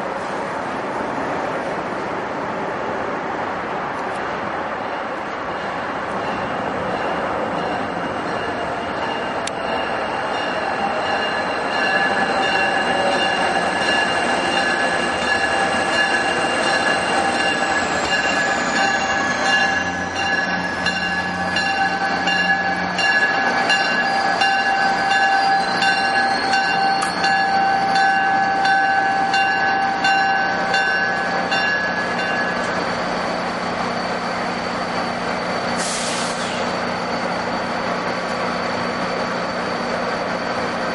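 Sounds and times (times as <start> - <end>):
train rumbling past: 0.0 - 40.9
high squealing tones: 10.0 - 40.9.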